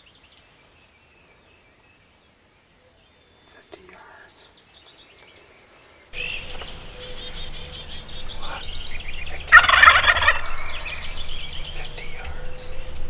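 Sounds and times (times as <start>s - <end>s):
songbirds chirping: 0.0s - 13.0s
turkey gobbling: 6.2s - 13.0s.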